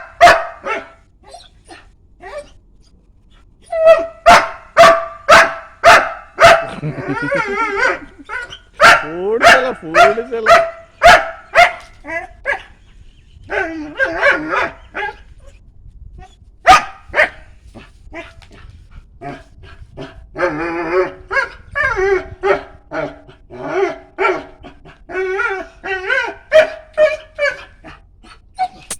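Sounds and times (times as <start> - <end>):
dog barking: 0.0 - 1.0, 3.8 - 12.8, 13.5 - 15.2, 16.6 - 17.4, 26.0 - 27.8
dog howling calls: 3.7 - 5.0, 6.4 - 12.7, 13.4 - 15.2, 20.4 - 27.8.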